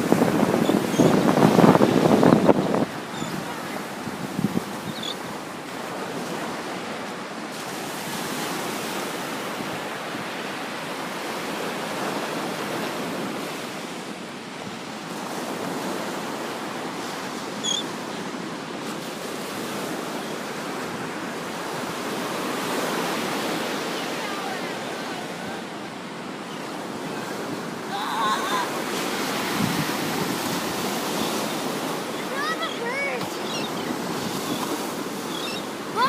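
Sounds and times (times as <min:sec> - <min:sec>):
wind on microphone: 0:00.0 - 0:05.3, 0:28.5 - 0:32.5
ocean surf on beach: 0:00.0 - 0:36.0
faint high bird calls: 0:00.6 - 0:01.3, 0:02.5 - 0:03.7, 0:04.8 - 0:05.3, 0:17.6 - 0:18.3, 0:31.0 - 0:36.0.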